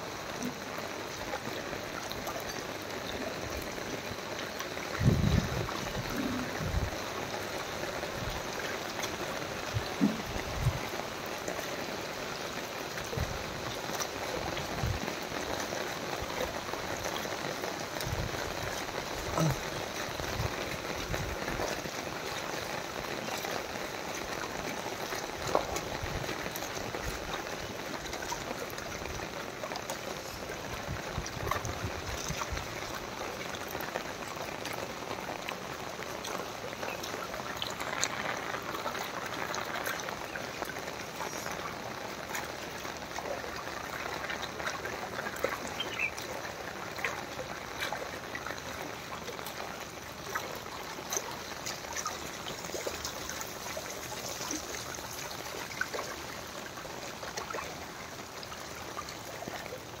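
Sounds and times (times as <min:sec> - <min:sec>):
rain on water: 0:00.0 - 1:00.0.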